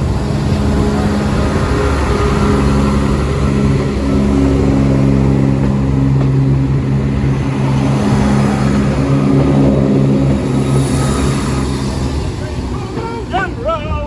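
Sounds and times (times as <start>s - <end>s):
train diesel engines running: 0.0s - 14.0s.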